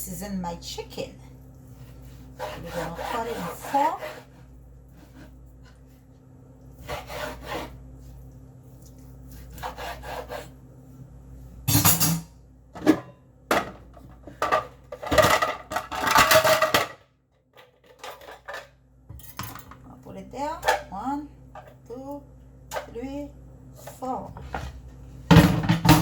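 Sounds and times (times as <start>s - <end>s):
knife sawing through chicken: 1.9s - 4.4s, 6.8s - 7.8s, 9.4s - 10.6s.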